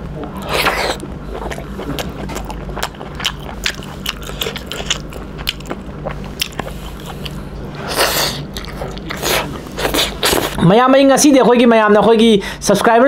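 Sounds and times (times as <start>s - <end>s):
low steady hum: 0.0s - 13.0s
wet chewing and biting: 0.4s - 10.6s.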